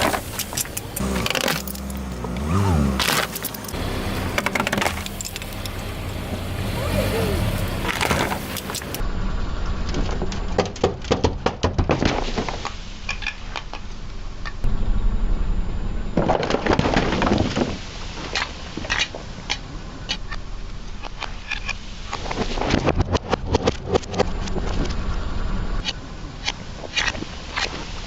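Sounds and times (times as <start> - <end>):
tyre crushing crunchy objects: 0.0 - 9.0
car low rumble: 0.0 - 28.0.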